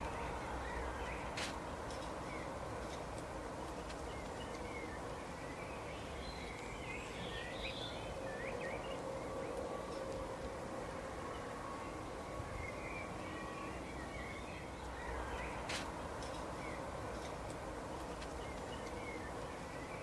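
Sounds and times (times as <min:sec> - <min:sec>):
small birds chirping: 0:00.0 - 0:09.6.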